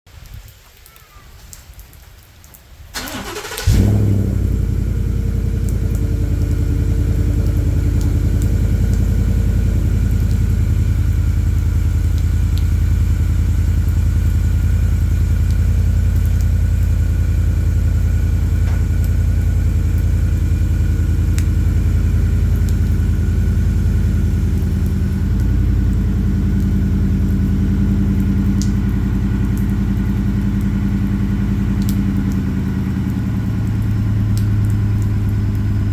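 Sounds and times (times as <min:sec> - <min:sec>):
starter motor cranking: 0:03.0 - 0:04.0
truck engine idling loudly: 0:03.1 - 0:35.9.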